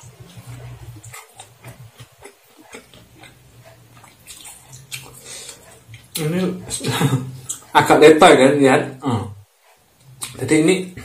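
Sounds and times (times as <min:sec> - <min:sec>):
chewing noodles: 0:00.0 - 0:07.8
wet mouth smacks and clicks: 0:04.0 - 0:05.2.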